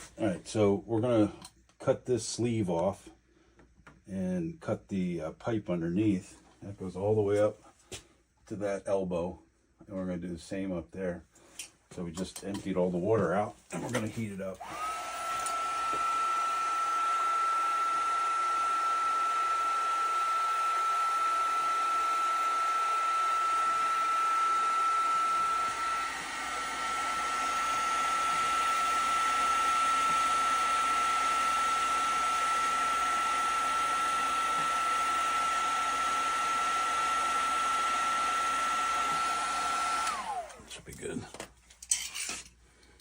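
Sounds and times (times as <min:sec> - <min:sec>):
heat gun fan whine: 0:13.8 - 0:41.1.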